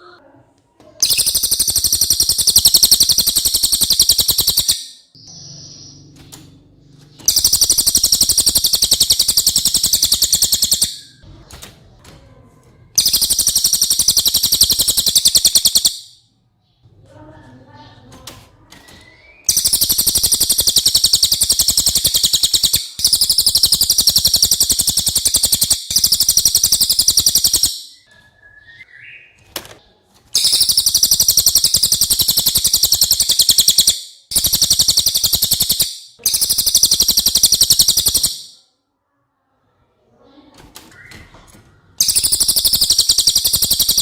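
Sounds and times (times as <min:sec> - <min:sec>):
songbird high-pitched trills: 0:01.0 - 0:06.2, 0:07.1 - 0:11.2, 0:13.0 - 0:16.2, 0:18.9 - 0:29.4, 0:30.4 - 0:38.6, 0:42.0 - 0:44.0.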